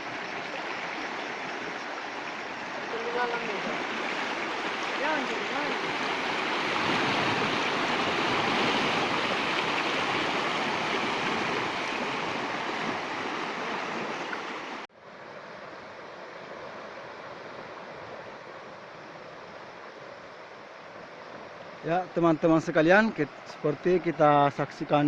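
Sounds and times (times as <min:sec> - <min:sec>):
floodwater rushing: 0:00.0 - 0:19.4.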